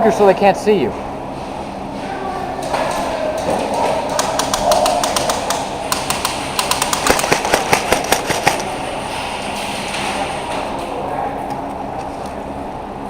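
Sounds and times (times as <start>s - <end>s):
outdoor background noise: 0.0s - 13.0s
airsoft guns firing: 3.8s - 8.9s.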